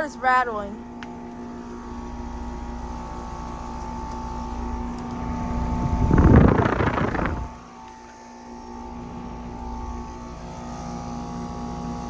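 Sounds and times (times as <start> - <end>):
air conditioner humming: 0.0 - 12.0
loud rushing noise: 5.8 - 7.6.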